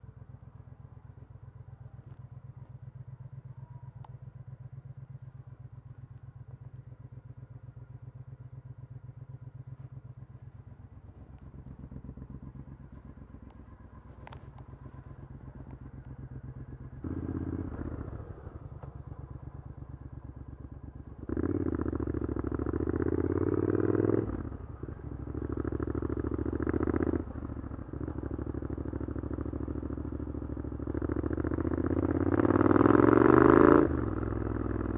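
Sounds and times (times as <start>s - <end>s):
motorcycle engine idling and revving: 0.0s - 34.9s.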